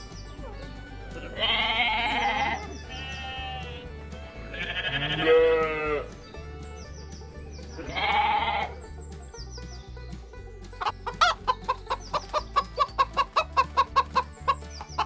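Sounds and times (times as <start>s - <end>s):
chickens clucking: 0.0s - 15.0s
sheep bleating: 0.9s - 6.2s, 7.8s - 8.8s.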